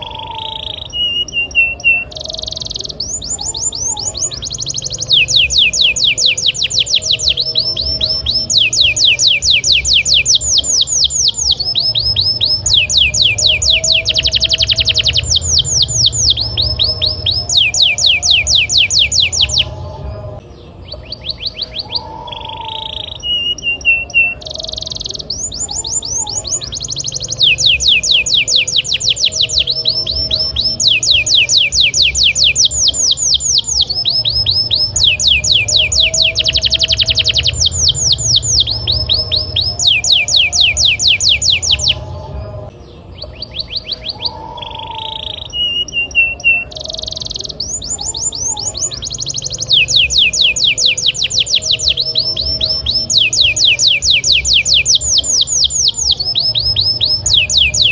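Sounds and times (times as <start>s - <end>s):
canary singing trills: 0.0s - 57.9s.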